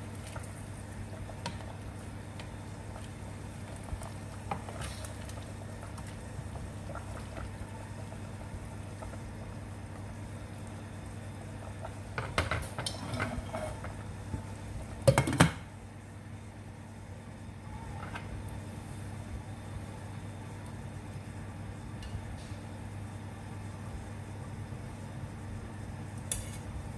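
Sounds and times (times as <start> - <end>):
sauce bubbling in a pan: 0.0 - 12.8
low steady hum: 0.0 - 26.9.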